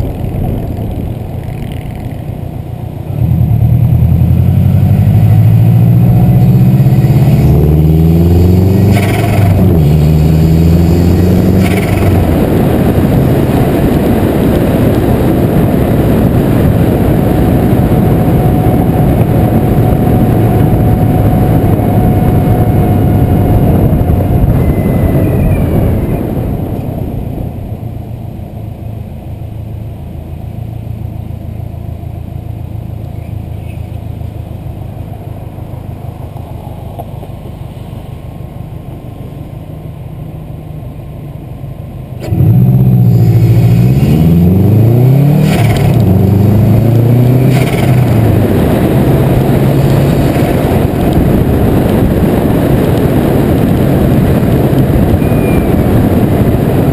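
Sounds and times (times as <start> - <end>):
car engine revving: 0.0 - 29.4, 42.2 - 56.9
gear shift sharp sounds: 45.4 - 46.2.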